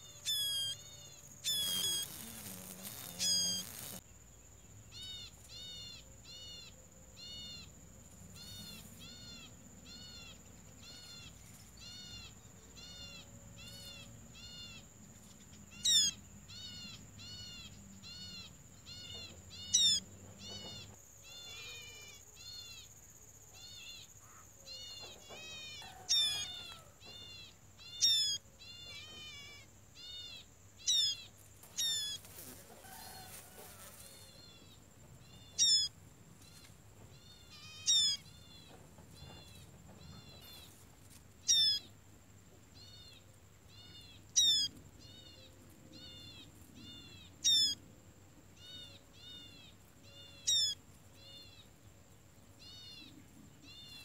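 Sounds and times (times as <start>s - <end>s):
high-pitched insect drone: 0.0s - 4.2s, 8.3s - 38.5s
birds chirping: 8.4s - 33.6s, 34.3s - 40.8s, 41.4s - 41.9s, 42.8s - 47.8s, 48.6s - 51.7s.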